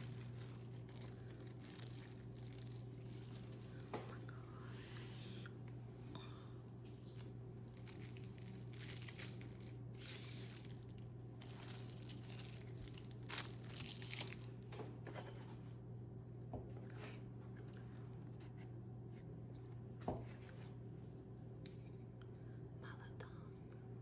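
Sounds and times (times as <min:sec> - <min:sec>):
food packaging torn and crinkled: 0:00.0 - 0:03.9, 0:07.0 - 0:14.6
steady low hum: 0:00.0 - 0:24.0.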